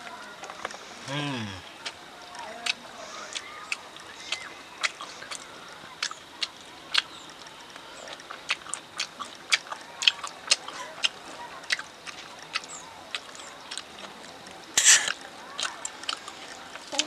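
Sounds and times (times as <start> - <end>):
chewing and mouth smacks: 1.4 - 17.0.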